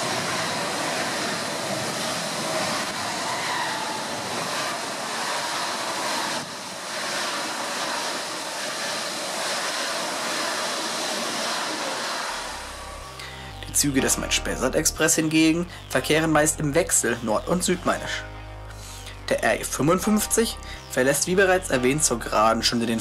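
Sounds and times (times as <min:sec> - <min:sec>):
high-speed train rushing past: 0:00.0 - 0:15.4.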